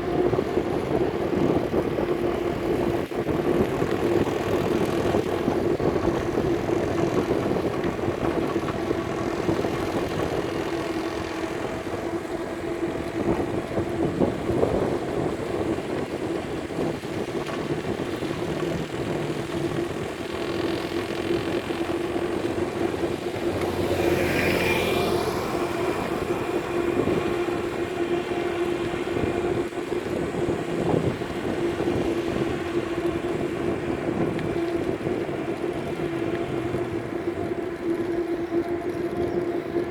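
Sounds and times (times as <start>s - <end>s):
road traffic: 21.2s - 30.7s
vehicle passing: 23.2s - 30.4s.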